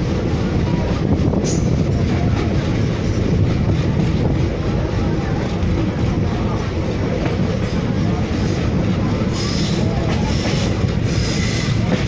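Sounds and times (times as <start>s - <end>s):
train wheels rumbling on rails: 0.0s - 12.0s
high squeal of train wheels: 0.7s - 3.3s, 7.6s - 12.0s.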